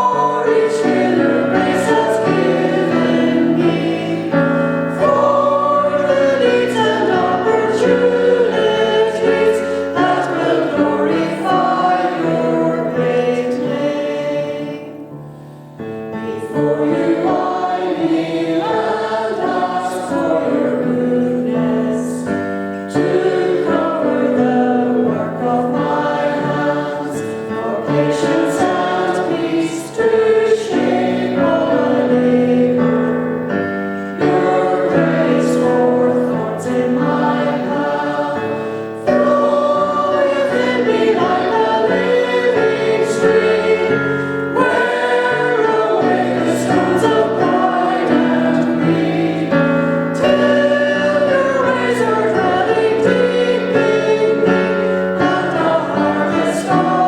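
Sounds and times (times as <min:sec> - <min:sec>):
choir singing a hymn: 0:00.0 - 0:57.0.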